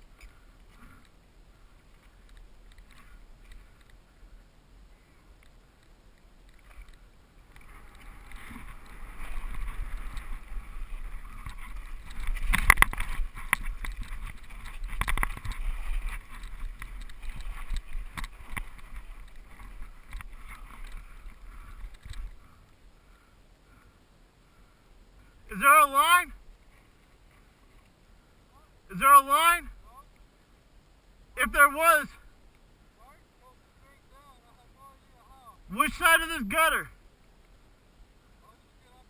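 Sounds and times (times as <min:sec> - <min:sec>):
bike tyres on dirt and rocks: 0:00.0 - 0:23.4
bike rattling: 0:06.5 - 0:22.6
sharp knocks over rough ground: 0:11.3 - 0:21.0.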